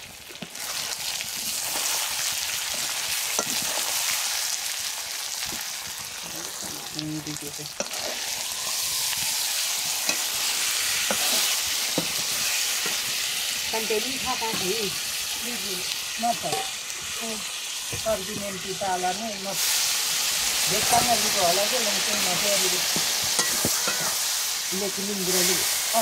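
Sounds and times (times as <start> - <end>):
chicken sizzling in a pan: 0.0 - 26.0
spoon stirring a pan: 0.3 - 4.5, 7.7 - 13.5, 14.2 - 14.8, 16.3 - 17.2, 22.8 - 24.4.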